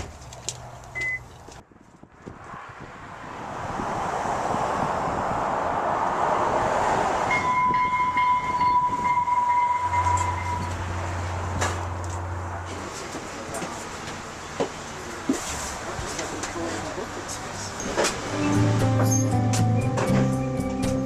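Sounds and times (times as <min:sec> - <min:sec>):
train rushing past: 0:03.4 - 0:14.8
train horn: 0:07.3 - 0:10.8.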